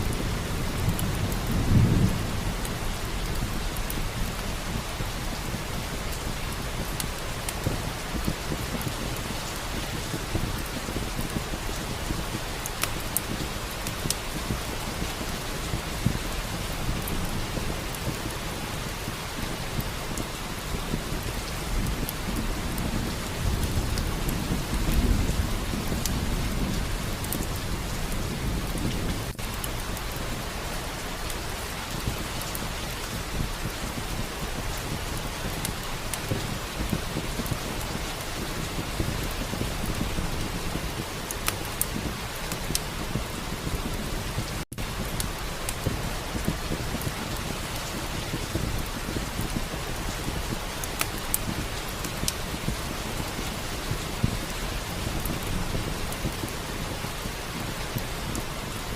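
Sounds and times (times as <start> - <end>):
heavy rain: 0.0 - 58.9
thunder rumbling: 0.0 - 58.9.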